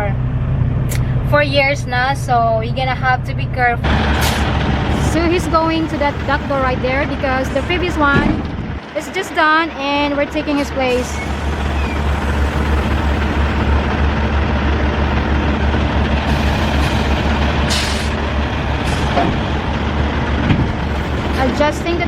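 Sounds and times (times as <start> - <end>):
truck engine running: 0.0 - 22.0
air brake hiss: 17.7 - 18.2.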